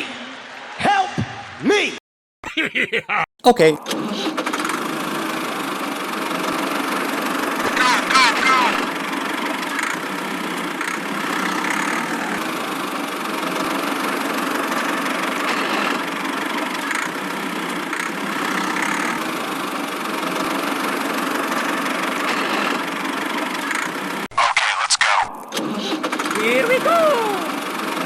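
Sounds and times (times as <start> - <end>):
small motor droning: 4.0 - 24.1.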